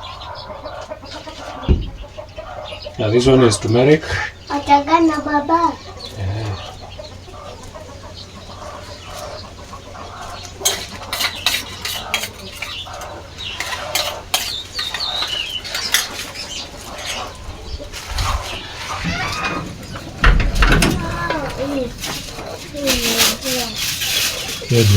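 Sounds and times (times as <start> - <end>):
chickens clucking: 0.0 - 24.9
spoons and dishes clinking: 10.6 - 17.3.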